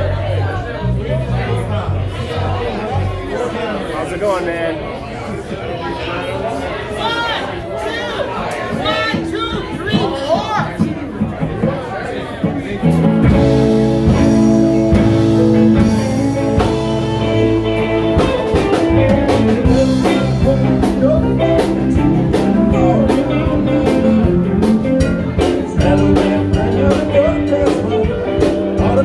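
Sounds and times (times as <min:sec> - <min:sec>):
guitar: 0:00.0 - 0:03.8, 0:08.2 - 0:29.0
drums beating: 0:08.6 - 0:29.0
live band playing: 0:12.4 - 0:29.0.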